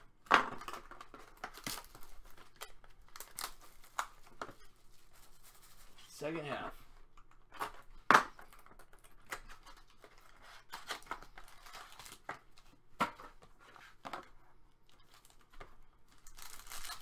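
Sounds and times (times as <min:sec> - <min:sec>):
wrappers crinkling and tearing: 0:00.9 - 0:06.2, 0:09.4 - 0:12.4, 0:16.1 - 0:17.0.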